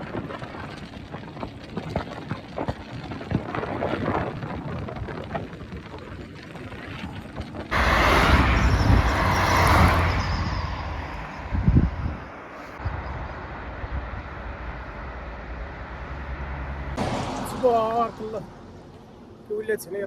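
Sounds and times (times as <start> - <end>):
loud wind rush and deep rumble: 0.0 - 19.6
car tyre and cabin noise: 5.2 - 19.8.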